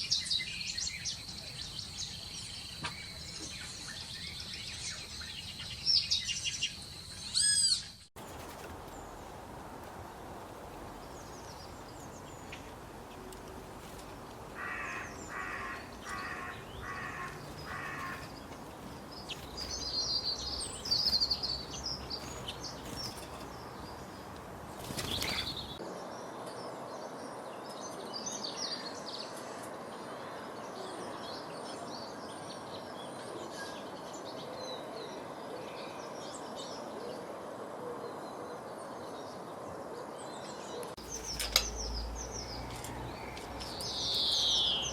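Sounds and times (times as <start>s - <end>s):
small birds chirping: 0.0s - 36.9s, 39.3s - 44.9s
bird harsh calls: 14.4s - 24.2s.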